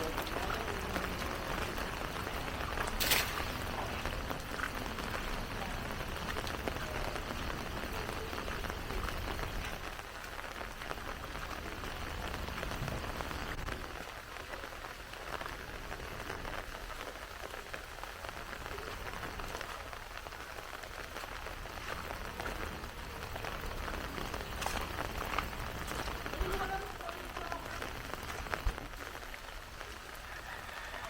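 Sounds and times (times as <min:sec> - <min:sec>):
heavy rain pattering: 0:00.0 - 0:31.0.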